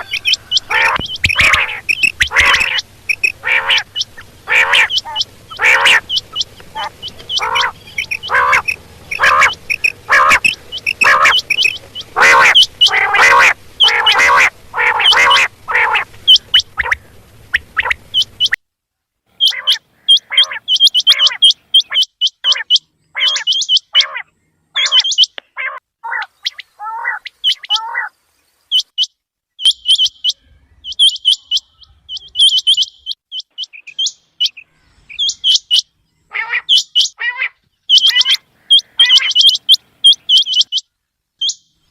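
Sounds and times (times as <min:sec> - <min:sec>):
low background hum: 0:00.0 - 0:18.6
quail calling: 0:00.0 - 0:18.6, 0:19.4 - 0:41.6.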